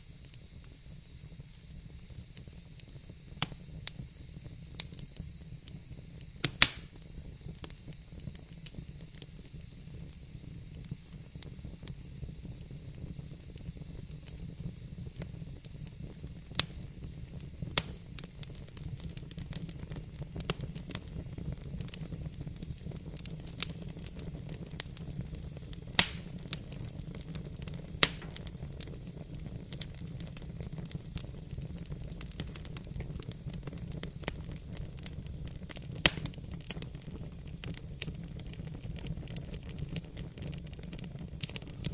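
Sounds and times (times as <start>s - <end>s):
fire crackling and popping: 0.0s - 41.9s.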